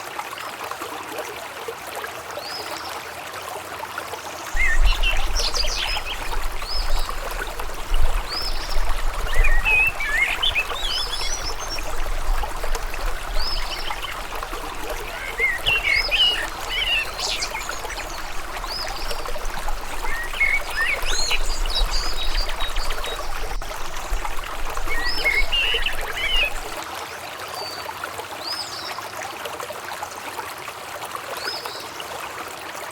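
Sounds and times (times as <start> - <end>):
river water flowing: 0.0 - 31.4
birds chirping: 4.6 - 26.8.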